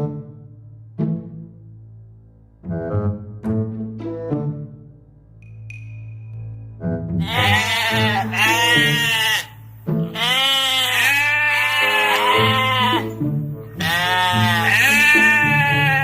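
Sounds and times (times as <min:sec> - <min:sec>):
background music with bass: 0:00.0 - 0:16.0
farm animal bleating: 0:07.2 - 0:16.0.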